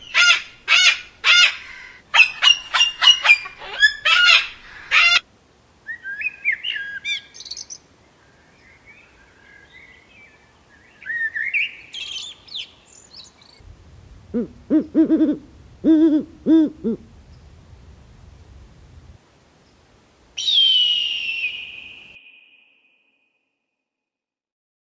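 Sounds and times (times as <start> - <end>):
loud high repeated bird calls: 0.0 - 5.2, 20.4 - 22.9
soft twisting birdsong: 12.0 - 20.6
low-pitched bird notes: 13.6 - 19.2.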